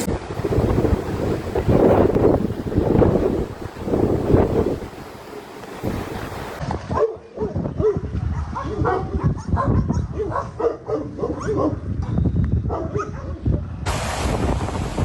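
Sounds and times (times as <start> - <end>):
wind buffeting microphone: 0.0 - 15.0
dog barking and yelping: 7.0 - 11.8, 12.7 - 13.4.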